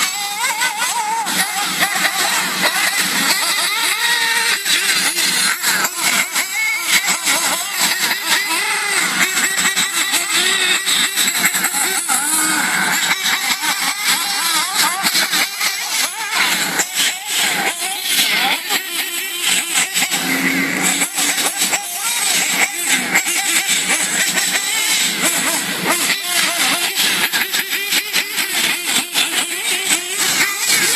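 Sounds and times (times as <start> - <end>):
rc car motors revving: 0.0 - 30.9
sharp ticks and knocks: 0.0 - 30.9.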